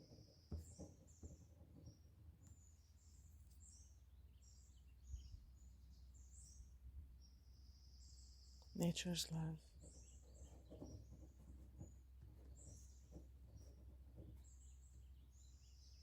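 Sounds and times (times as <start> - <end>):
faint birdsong chirps: 0.0 - 16.0.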